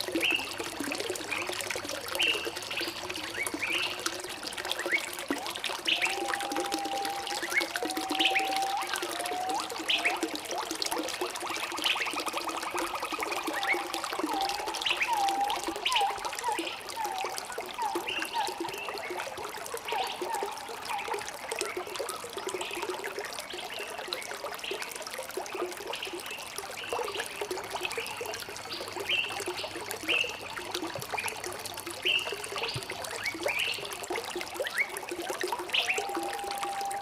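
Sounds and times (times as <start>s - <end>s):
water trickling and gurgling: 0.0s - 37.0s.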